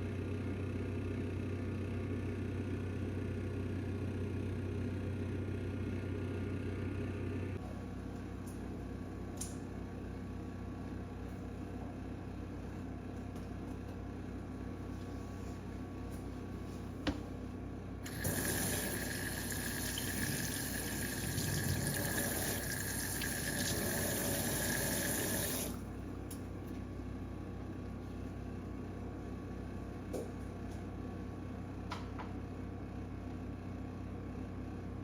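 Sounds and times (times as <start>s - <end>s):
water running: 18.0s - 25.9s.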